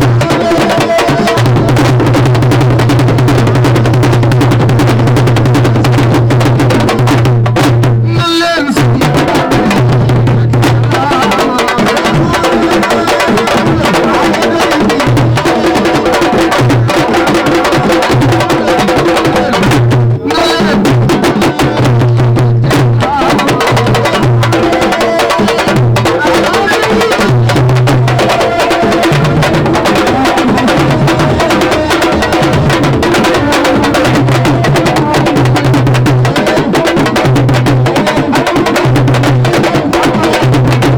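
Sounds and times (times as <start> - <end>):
rapid dense drumming: 0.0 - 40.9
voices in music: 0.0 - 40.9
heavy bass line: 27.4 - 35.1.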